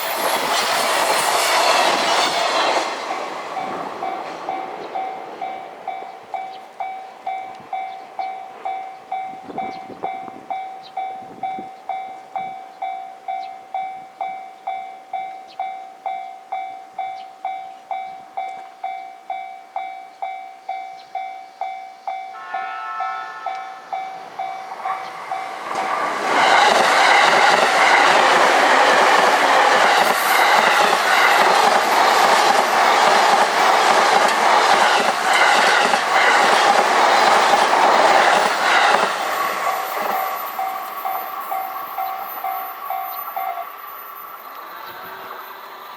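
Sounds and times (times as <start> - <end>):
level-crossing bell ringing: 0.0 - 0.5, 3.5 - 33.7, 34.6 - 44.6
train wheels clattering: 24.3 - 43.6.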